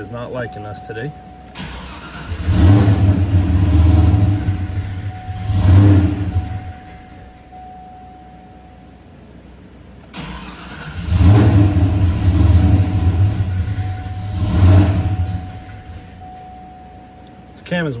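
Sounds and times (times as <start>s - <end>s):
engine starting and running roughly: 1.5s - 7.5s, 10.0s - 16.2s.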